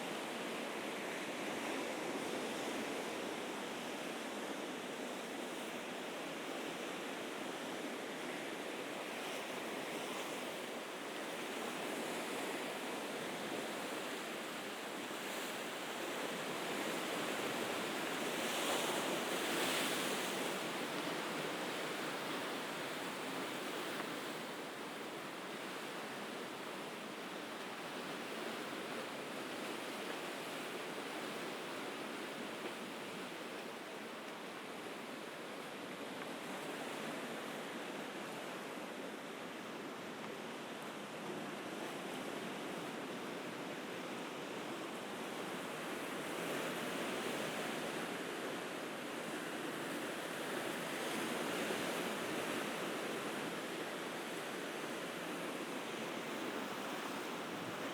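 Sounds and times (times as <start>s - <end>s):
sea waves washing on shore: 0.0s - 57.9s.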